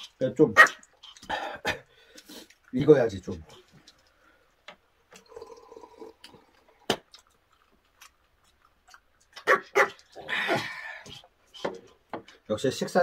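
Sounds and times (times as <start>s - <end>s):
chewing: 0.8s - 1.4s, 2.0s - 2.9s, 5.2s - 12.5s
gulping drink: 1.0s - 2.0s, 5.2s - 7.6s.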